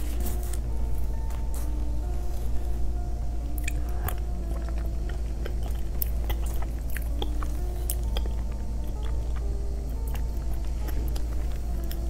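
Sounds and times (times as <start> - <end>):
steady low hum: 0.0 - 12.0
chewing with wet mouth clicks: 3.6 - 12.0.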